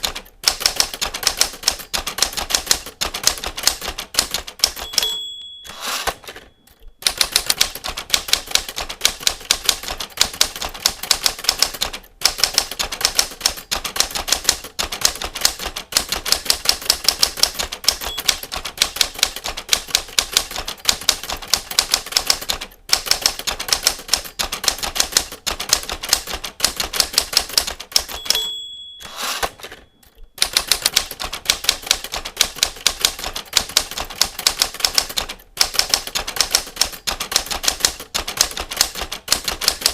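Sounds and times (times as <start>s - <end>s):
typewriter keys clacking: 0.0s - 39.9s
typewriter bell ding: 4.5s - 8.9s, 17.3s - 19.4s, 27.9s - 31.0s.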